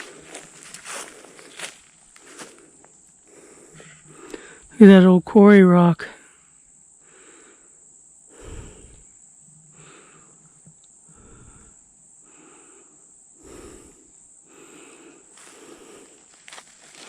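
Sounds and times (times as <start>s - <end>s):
footsteps in dry leaves: 0.0s - 2.7s, 15.4s - 17.0s
high-pitched insect drone: 0.0s - 17.0s.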